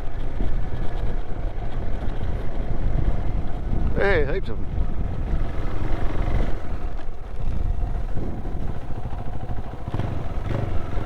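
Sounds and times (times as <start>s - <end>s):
motorcycle engine running: 0.0s - 11.0s
wind on microphone: 2.3s - 11.0s.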